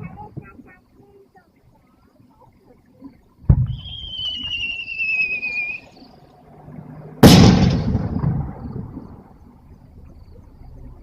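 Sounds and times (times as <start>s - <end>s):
firework launch thud: 3.5s - 3.9s, 7.2s - 9.0s
firework bang: 3.5s - 4.1s, 7.2s - 9.0s
firework whistling: 3.5s - 6.0s, 7.2s - 9.1s.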